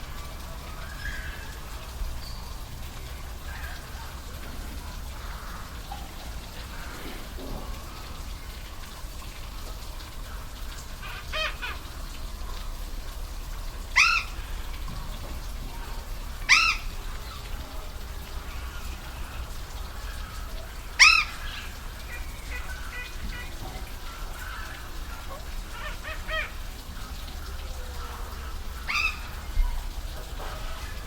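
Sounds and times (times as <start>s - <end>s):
waterfall rushing: 13.1s - 31.0s
bird calling: 13.9s - 14.6s, 15.8s - 17.5s, 18.4s - 29.8s.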